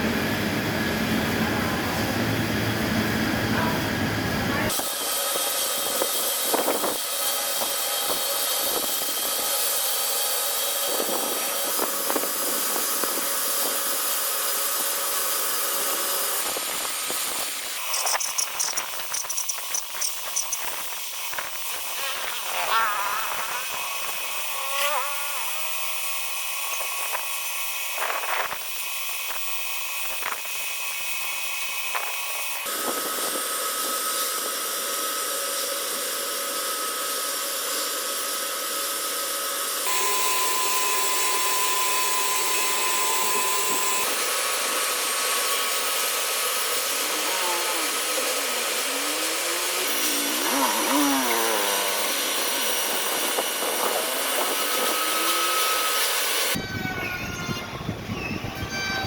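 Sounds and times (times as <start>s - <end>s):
sawmill machinery whine: 0.0s - 59.0s.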